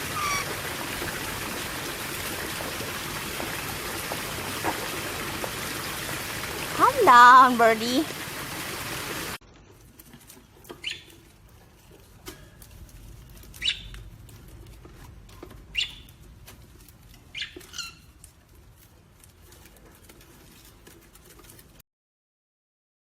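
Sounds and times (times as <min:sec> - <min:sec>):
parrot chirping: 0:00.0 - 0:00.6, 0:10.8 - 0:11.1, 0:13.5 - 0:13.9, 0:15.7 - 0:16.2, 0:17.3 - 0:18.2
rustling: 0:09.4 - 0:21.8.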